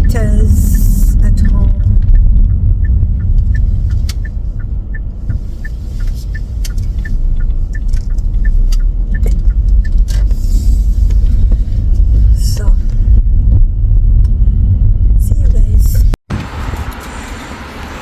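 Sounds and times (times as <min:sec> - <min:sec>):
light regular ticking: 0:00.0 - 0:16.2
car engine and tyre rumble: 0:00.0 - 0:18.0.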